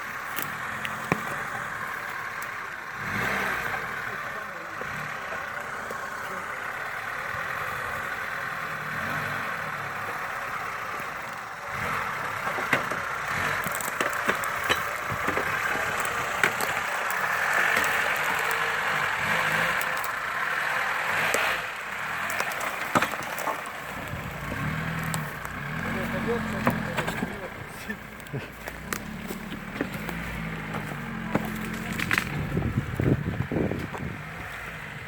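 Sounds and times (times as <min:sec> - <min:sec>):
off-road vehicle engine running: 0:00.0 - 0:35.0
sharp clicks and knocks: 0:12.4 - 0:19.0, 0:22.2 - 0:25.6, 0:26.5 - 0:34.1.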